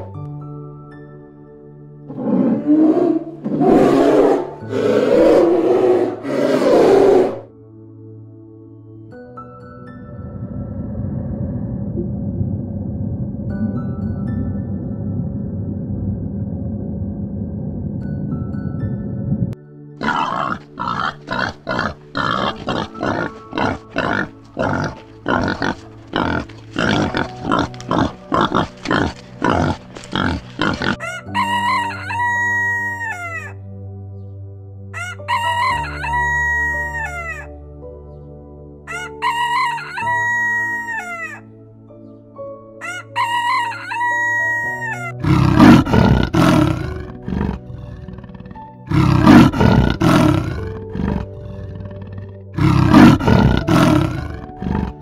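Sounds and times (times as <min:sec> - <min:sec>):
soft background music: 0:00.0 - 0:55.0
leopard roaring: 0:02.1 - 0:07.5, 0:20.0 - 0:31.1, 0:45.2 - 0:55.0
wild boar grunting: 0:02.1 - 0:07.5, 0:20.0 - 0:31.3, 0:45.1 - 0:55.0
rooster crowing: 0:31.0 - 0:33.5, 0:35.0 - 0:37.4, 0:38.9 - 0:41.4, 0:42.8 - 0:45.1.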